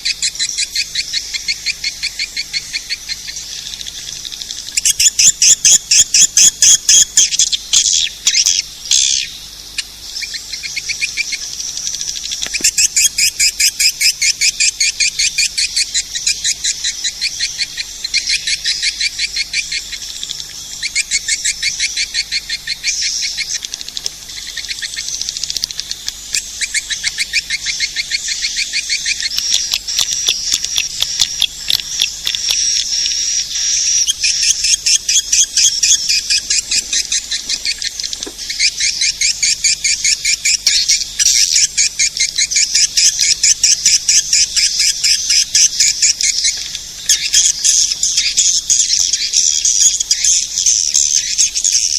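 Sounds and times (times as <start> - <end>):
high-pitched bird twittering chirps: 26.6 - 51.9.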